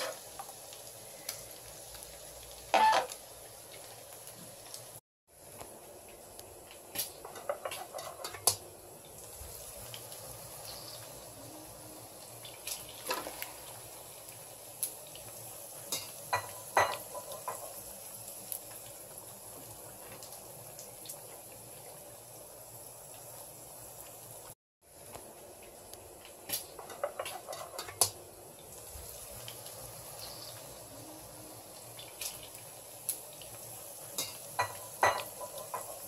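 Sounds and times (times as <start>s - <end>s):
tomatoes sizzling in oil: 0.0s - 36.0s
metal spoon scraping a pan: 7.2s - 8.5s.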